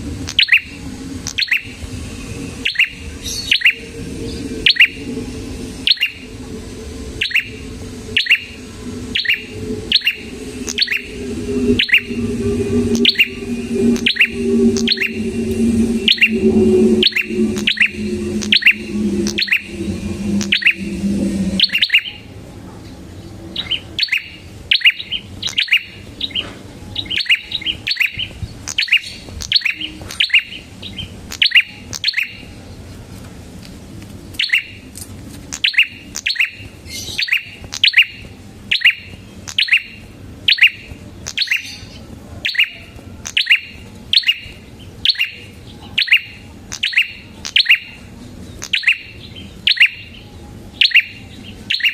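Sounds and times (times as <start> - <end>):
low hum: 0.0 - 23.6
songbird chirping: 2.6 - 22.2.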